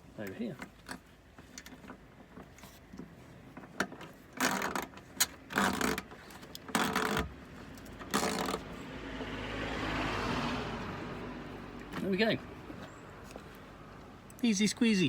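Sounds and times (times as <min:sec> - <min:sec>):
ratchet wrench ratcheting: 0:04.4 - 0:07.3, 0:08.0 - 0:08.7.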